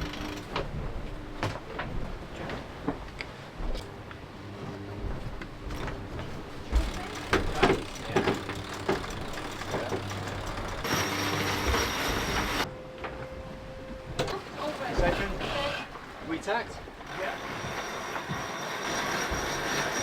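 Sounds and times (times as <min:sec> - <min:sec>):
mechanical hum through hull: 0:00.0 - 0:20.0.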